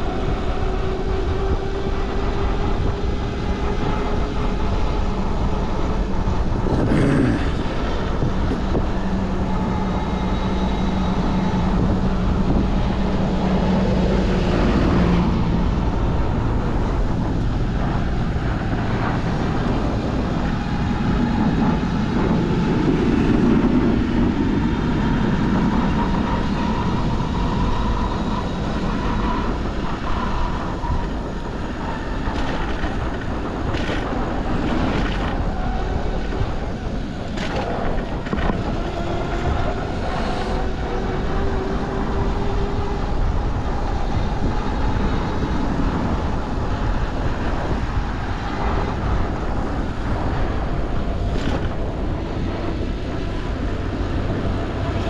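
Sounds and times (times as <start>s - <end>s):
street traffic: 0.0s - 55.0s
wind rushing over microphone: 0.0s - 55.0s.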